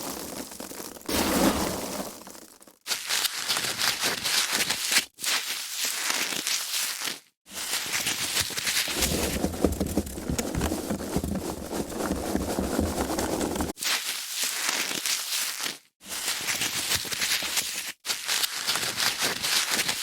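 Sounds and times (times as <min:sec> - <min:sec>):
foam packaging rustling: 0:06.0 - 0:15.8.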